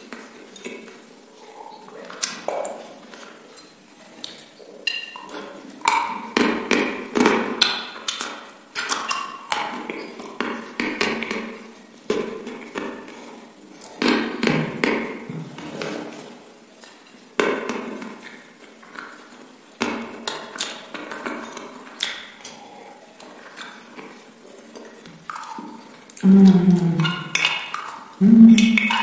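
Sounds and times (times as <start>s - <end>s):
chewing and lip smacking: 0.2s - 6.3s, 20.2s - 29.0s
sharp mouth clicks: 25.3s - 29.0s.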